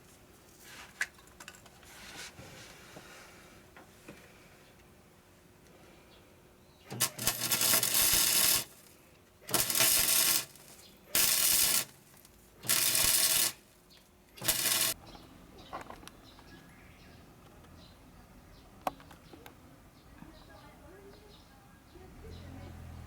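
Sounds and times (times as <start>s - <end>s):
welder crackling and hissing: 6.9s - 15.0s.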